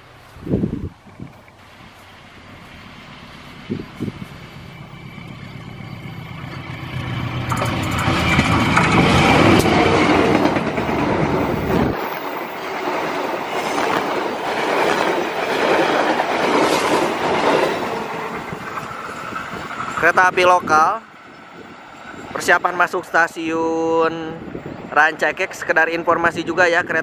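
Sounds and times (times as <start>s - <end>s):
locomotive engine rumble: 0.0s - 22.4s
train wheels clattering on rails: 2.3s - 21.0s.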